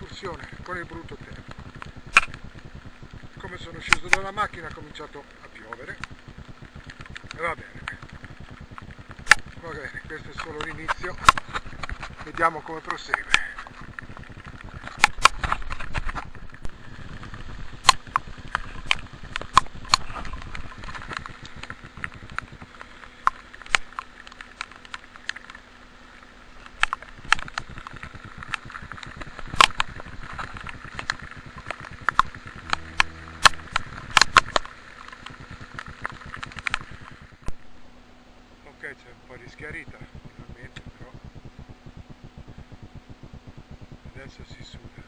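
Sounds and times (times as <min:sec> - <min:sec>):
rain hiss: 0:00.0 - 0:45.0
raindrops ticking on camera housing: 0:00.0 - 0:45.0.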